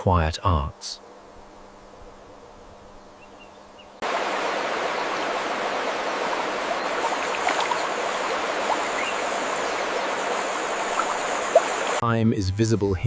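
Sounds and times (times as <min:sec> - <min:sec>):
faint hiss with low hum: 0:00.0 - 0:13.0
running water: 0:04.0 - 0:12.0.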